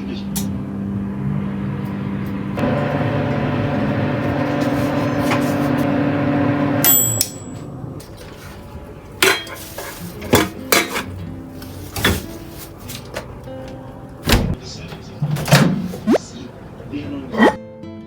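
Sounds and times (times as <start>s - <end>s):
appliance humming: 0.0s - 9.1s
dishes clinking and knocking: 9.2s - 11.2s.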